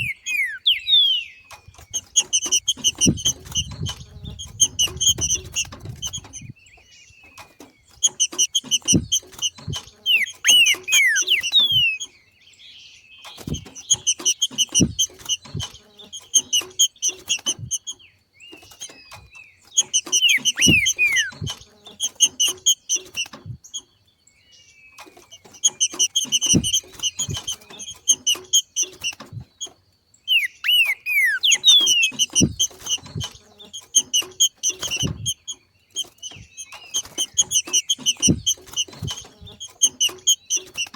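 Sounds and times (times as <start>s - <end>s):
bird chattering and whistling: 0.0s - 12.2s, 13.3s - 23.8s, 25.2s - 40.9s
low thumps: 1.7s - 6.5s, 13.4s - 15.8s, 37.3s - 39.6s.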